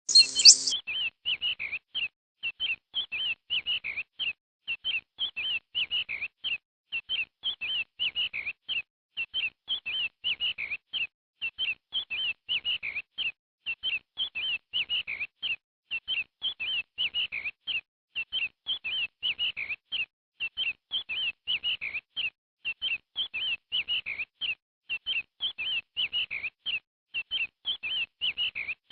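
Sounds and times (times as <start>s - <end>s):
quail calling: 0.1s - 0.7s.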